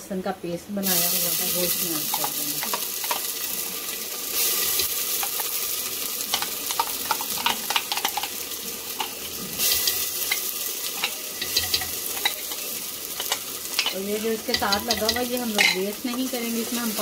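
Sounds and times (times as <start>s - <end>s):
paste sizzling in hot oil: 0.8s - 17.0s
spoon clicking on jar and pot: 10.3s - 12.6s, 13.2s - 15.8s.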